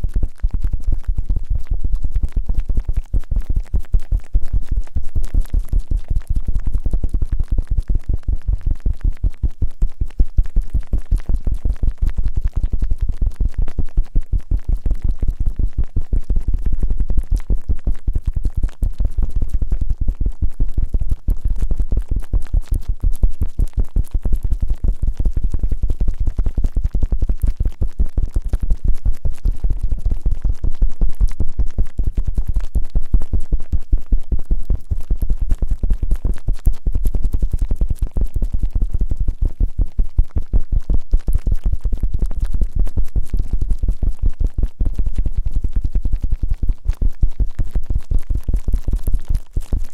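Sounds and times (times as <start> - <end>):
rubbing on microphone: 0.0 - 47.4, 48.5 - 49.9.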